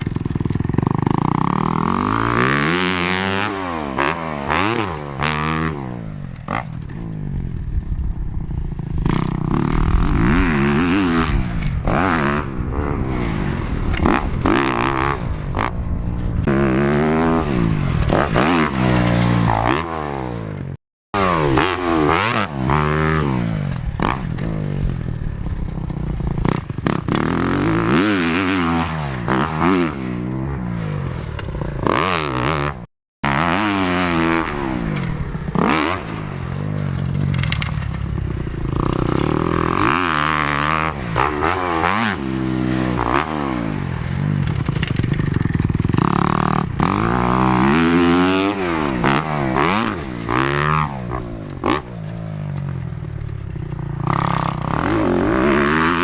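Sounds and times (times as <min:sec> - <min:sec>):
dirt bike engine revving: 0:00.0 - 0:07.4, 0:08.3 - 0:56.0.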